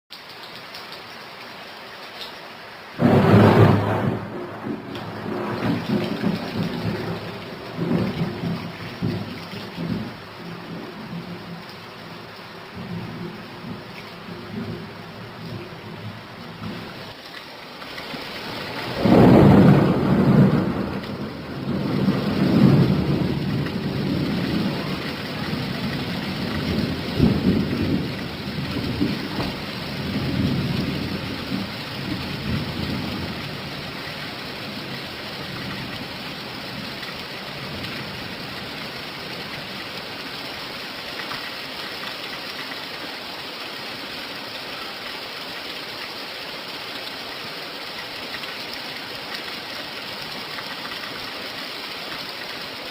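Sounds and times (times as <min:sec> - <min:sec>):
steady rain: 0:00.1 - 0:52.9
thunder rumbling: 0:03.0 - 0:11.7, 0:12.7 - 0:17.0, 0:18.5 - 0:34.0.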